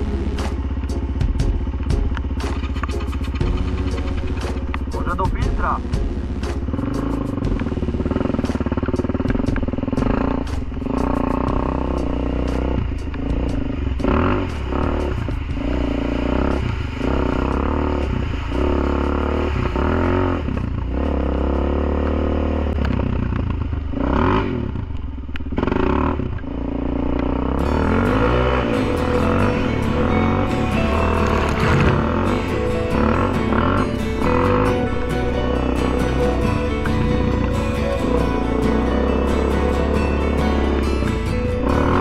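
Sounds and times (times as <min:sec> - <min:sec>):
quad engine revving: 0:00.0 - 0:42.0.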